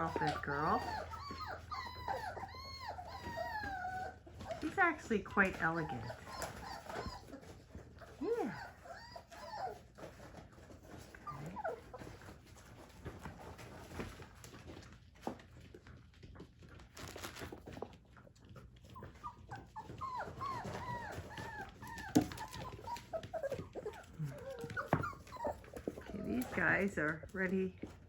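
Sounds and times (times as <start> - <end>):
puppies whimpering: 0.0 - 12.7, 18.8 - 27.2
puppies whining: 0.0 - 14.9, 17.7 - 27.3
puppies rustling and clicking: 0.0 - 28.0.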